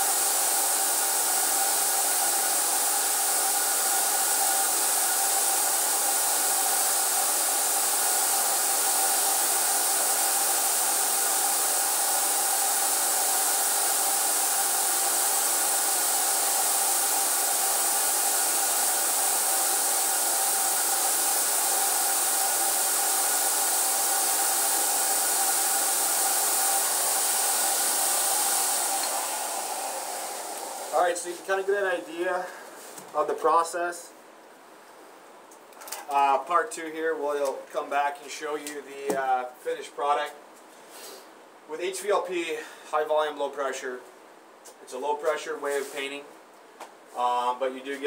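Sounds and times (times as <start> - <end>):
paint sprayer hissing with whine: 0.0 - 33.6.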